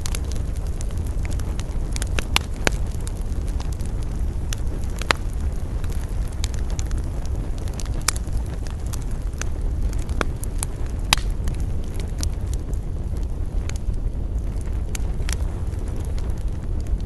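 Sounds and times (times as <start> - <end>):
campfire crackling: 0.0 - 17.0
low wind rumble: 0.0 - 17.0.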